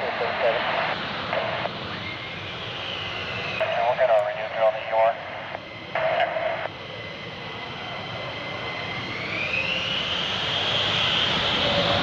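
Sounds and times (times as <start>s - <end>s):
radio transmission crackle: 0.0s - 1.8s, 3.6s - 6.7s
jet engine whine: 0.0s - 12.0s.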